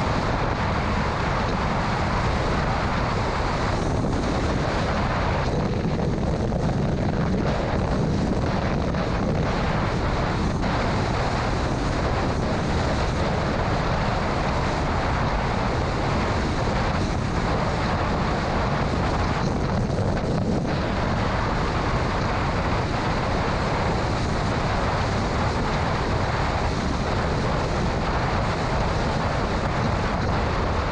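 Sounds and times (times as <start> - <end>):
tyre and road noise: 0.0 - 30.9
wind: 0.0 - 30.9.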